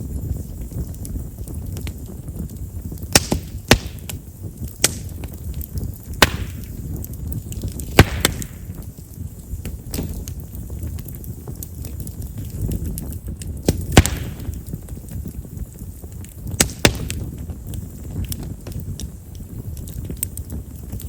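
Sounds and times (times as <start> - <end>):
campfire crackling: 0.0 - 21.0
low fire rumble: 0.0 - 21.0
sharp pops with hiss: 3.0 - 8.9, 12.7 - 14.8, 16.5 - 17.3.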